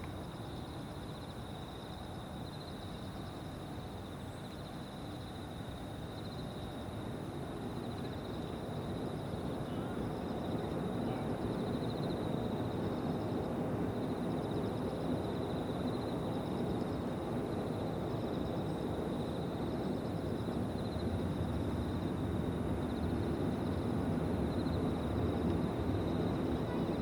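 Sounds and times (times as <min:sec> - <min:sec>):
insects trilling: 0:00.1 - 0:27.0.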